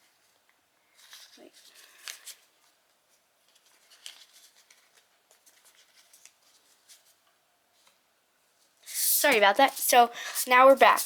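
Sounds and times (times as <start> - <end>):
paper crinkling and rustling: 0.0 - 8.0.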